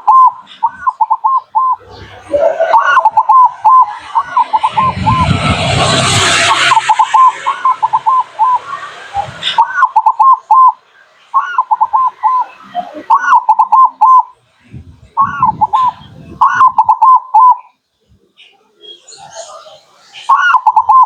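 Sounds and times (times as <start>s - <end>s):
dove cooing song: 0.0s - 5.6s, 6.6s - 10.8s, 11.4s - 17.7s, 20.3s - 21.0s.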